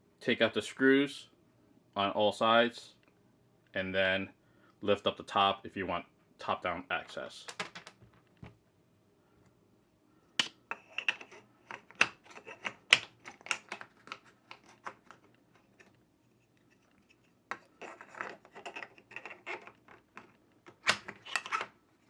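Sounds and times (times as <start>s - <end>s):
objects clicking and tapping: 7.5s - 8.6s, 10.4s - 16.0s, 16.6s - 21.8s.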